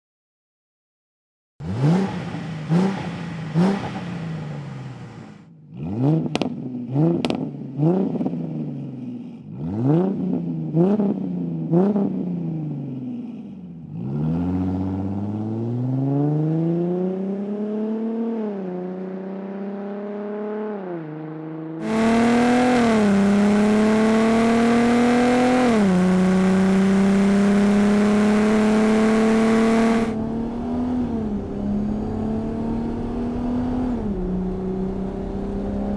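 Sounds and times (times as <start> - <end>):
car engine throttle blips: 1.6 - 5.4, 21.8 - 30.2
car accelerating through gears: 1.6 - 7.3, 21.8 - 30.2.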